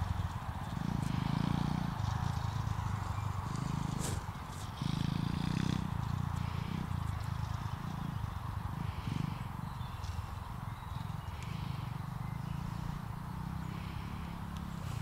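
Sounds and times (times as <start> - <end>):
pit bike engine running: 0.0 - 15.0.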